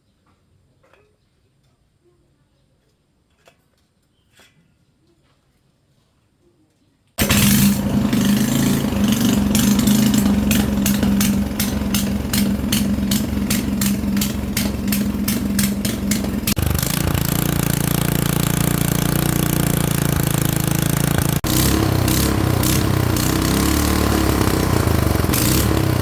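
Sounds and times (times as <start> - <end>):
regular engine ticking: 7.2 - 26.0
small gasoline engine running: 7.2 - 26.0.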